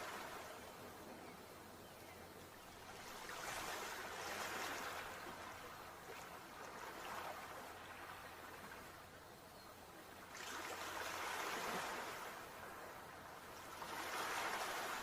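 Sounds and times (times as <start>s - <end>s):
sea waves washing on shore: 2.8s - 9.1s, 10.2s - 15.0s.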